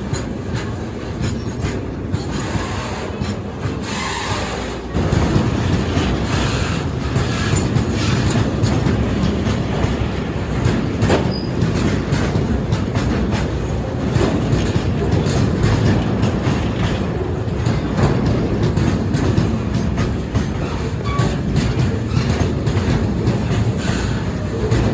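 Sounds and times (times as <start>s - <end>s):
train wheel squeal: 0.0s - 9.8s, 11.0s - 12.4s, 18.8s - 24.9s
train wheels rumbling and clattering: 0.0s - 24.9s.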